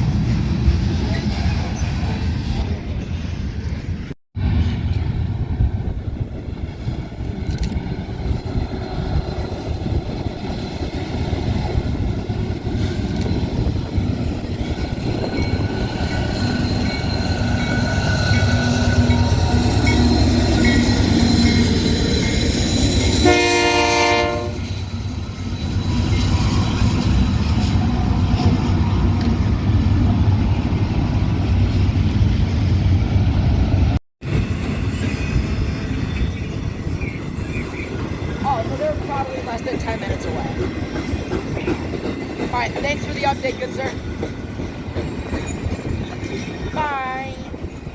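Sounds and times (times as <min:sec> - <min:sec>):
train rumbling on rails: 0:00.0 - 0:47.9
train horn blast: 0:23.2 - 0:24.8.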